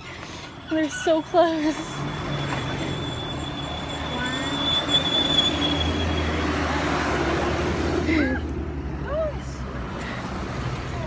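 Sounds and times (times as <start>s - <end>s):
vehicle engine rumble: 0.0s - 11.0s
thin high-pitched squeal: 0.9s - 6.4s.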